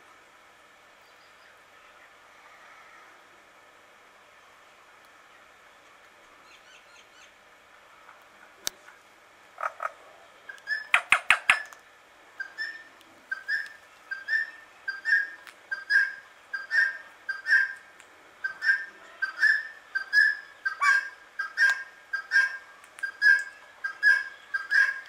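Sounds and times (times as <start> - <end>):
bird chirping: 10.5 - 11.8, 12.4 - 17.8, 18.4 - 25.0.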